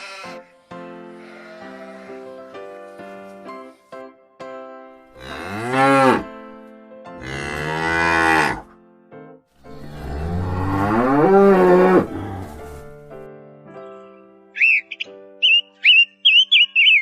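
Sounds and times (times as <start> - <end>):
soft background music: 0.0 - 17.0
cow mooing: 5.2 - 6.3, 7.2 - 8.7, 9.7 - 12.9.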